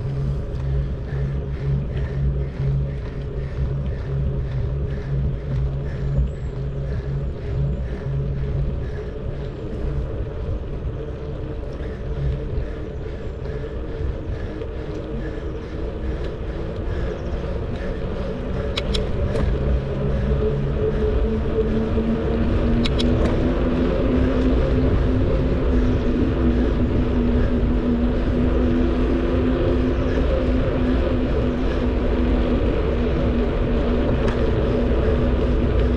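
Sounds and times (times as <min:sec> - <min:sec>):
motor drone: 0:00.0 - 0:35.9
wind and riding noise: 0:00.0 - 0:35.9.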